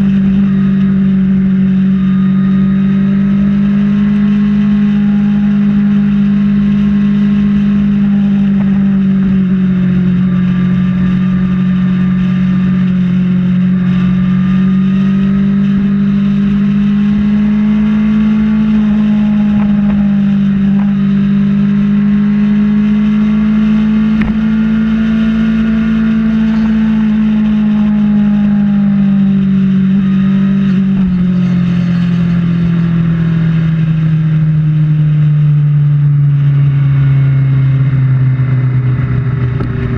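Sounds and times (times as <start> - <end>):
motorcycle engine cruising: 0.0 - 39.9
wind on microphone: 38.7 - 39.9.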